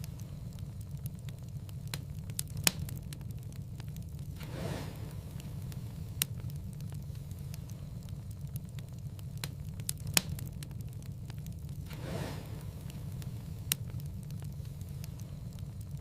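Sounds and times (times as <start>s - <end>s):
low rumble: 0.0s - 16.0s
wood fire crackling: 0.0s - 16.0s.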